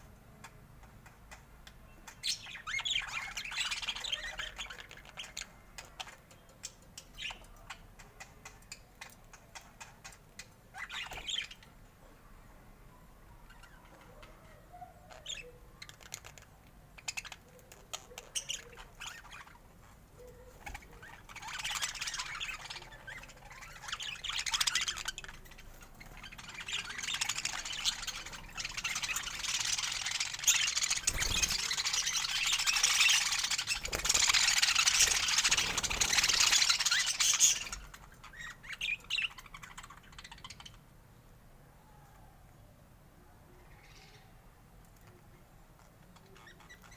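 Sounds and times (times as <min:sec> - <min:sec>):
budgerigars chirping: 0:02.1 - 0:05.5, 0:20.7 - 0:40.8.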